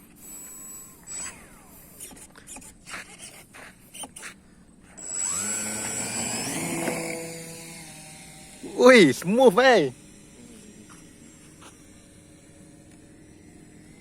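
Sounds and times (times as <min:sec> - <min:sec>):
model plane motor whining: 0:00.0 - 0:03.2, 0:05.0 - 0:14.0.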